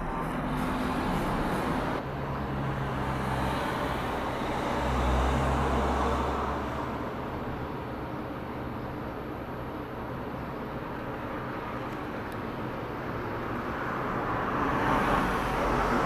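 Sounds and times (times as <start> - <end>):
jet airliner engine rumble: 0.0 - 2.4.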